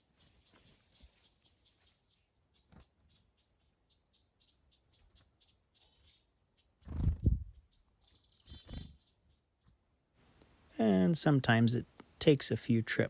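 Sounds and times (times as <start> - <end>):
chickadees calling: 7.6 - 9.4.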